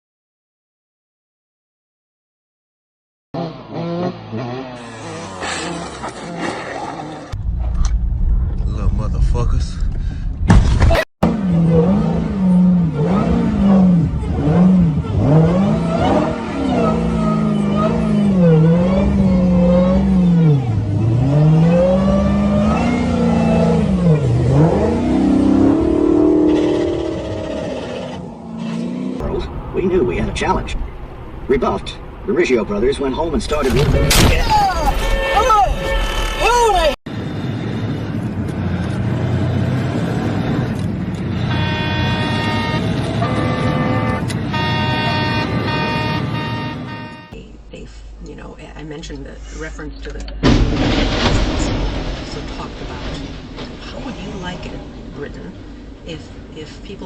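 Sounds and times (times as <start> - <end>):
engine at high revs: 3.4 - 7.4, 11.2 - 29.4
road traffic noise: 3.4 - 10.6, 11.2 - 57.0
horn blaring: 34.9 - 37.0, 41.4 - 47.4.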